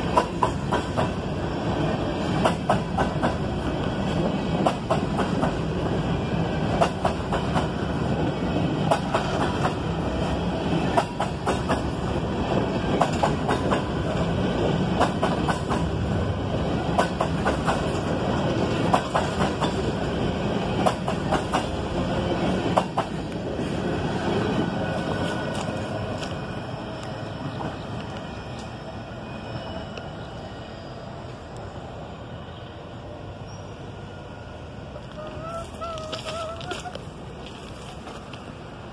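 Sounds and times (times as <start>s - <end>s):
train cars rumbling past: 0.0s - 38.9s
wheels clacking over rail joints: 8.8s - 12.0s, 12.6s - 16.0s, 16.8s - 23.5s.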